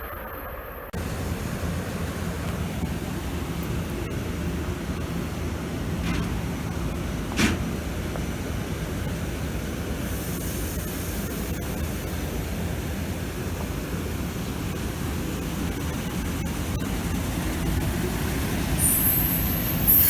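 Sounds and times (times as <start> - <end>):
train rumble and hiss: 0.0 - 20.0.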